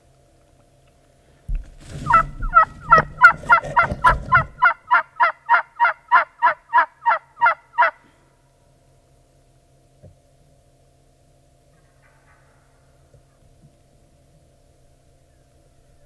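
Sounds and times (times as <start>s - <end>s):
low rustling: 1.5s - 4.8s
turkey yelps: 2.0s - 8.0s, 11.7s - 13.4s.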